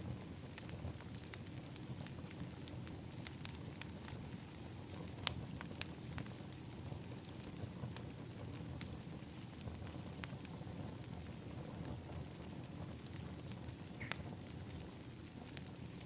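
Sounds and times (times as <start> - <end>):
fire pops and snaps: 0.0 - 16.0.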